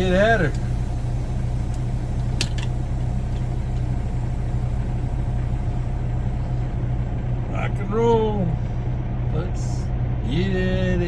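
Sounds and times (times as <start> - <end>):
truck engine idling: 0.0 - 11.0
sharp click: 2.4 - 2.7.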